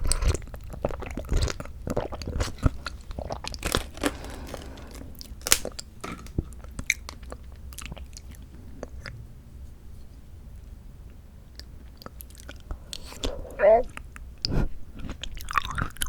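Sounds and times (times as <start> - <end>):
wet chewing and mouth smacks: 0.0 - 9.2, 11.5 - 16.0.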